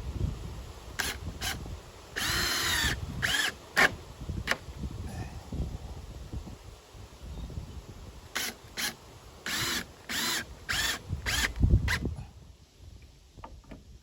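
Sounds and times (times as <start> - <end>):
power drill driving screws: 1.0 - 1.6, 2.2 - 3.9, 8.3 - 12.0.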